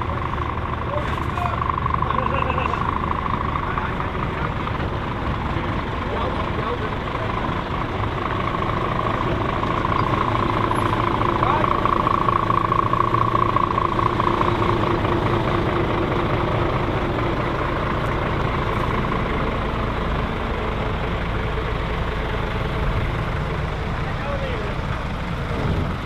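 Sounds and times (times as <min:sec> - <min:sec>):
heavy truck engine running: 0:00.0 - 0:26.0
steady higher tone: 0:08.2 - 0:17.7.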